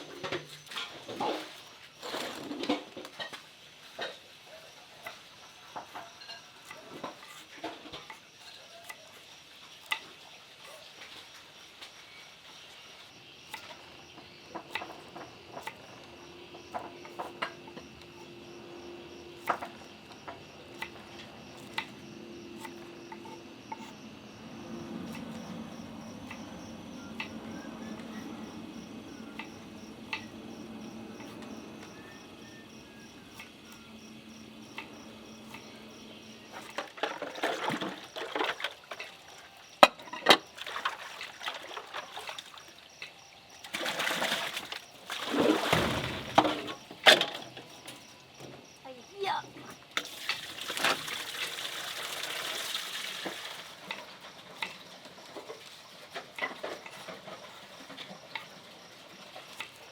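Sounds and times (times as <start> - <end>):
insects chirring: 0.0 - 59.9
water splashing: 43.7 - 46.6.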